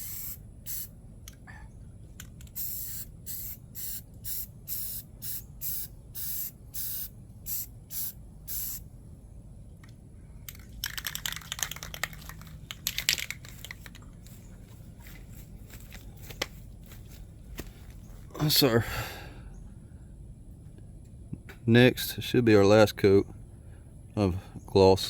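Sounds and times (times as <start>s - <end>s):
aerosol spray can hissing: 0.0s - 0.9s, 2.5s - 8.8s
crackling rustling clicks: 9.8s - 16.6s.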